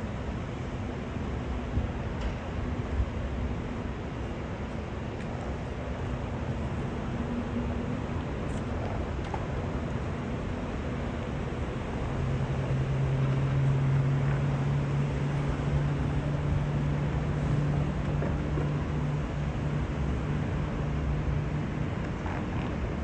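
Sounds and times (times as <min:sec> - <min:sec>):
low engine-like hum: 0:00.0 - 0:23.0.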